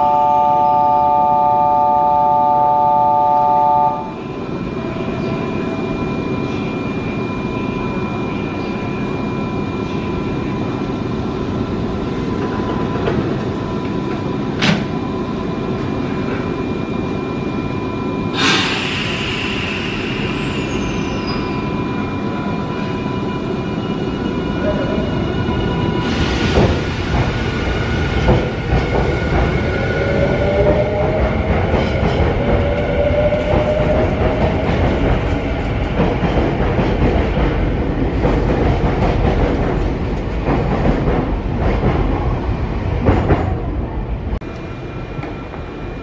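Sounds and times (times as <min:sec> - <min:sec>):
electric train humming: 0:00.0 - 0:41.6
air hiss of doors closing: 0:18.4 - 0:20.4.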